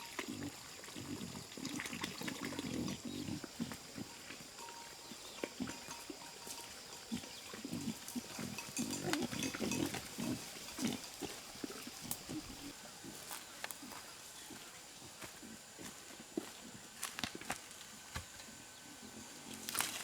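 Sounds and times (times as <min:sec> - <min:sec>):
pigs grunting: 0:00.0 - 0:04.4, 0:07.1 - 0:12.7.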